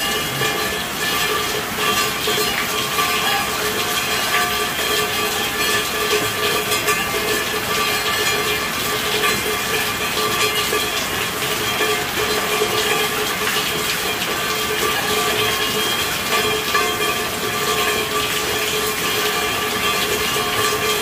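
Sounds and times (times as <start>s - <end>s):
steady rainfall hiss: 0.0s - 21.0s.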